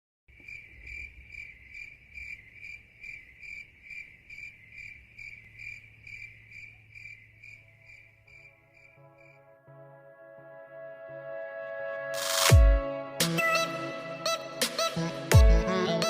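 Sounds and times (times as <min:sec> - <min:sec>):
cricket chirping: 0:00.3 - 0:09.4.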